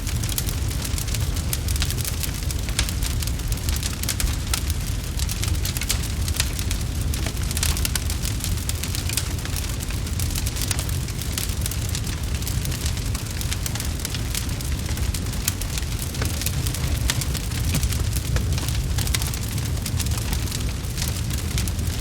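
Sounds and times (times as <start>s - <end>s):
wood fire crackling: 0.0s - 22.0s
low rumble: 12.0s - 22.0s.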